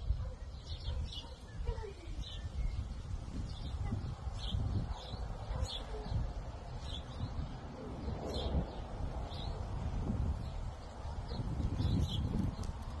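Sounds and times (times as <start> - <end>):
bird chirping: 0.0 - 9.6, 10.4 - 12.8
steady low rumble: 2.9 - 13.0.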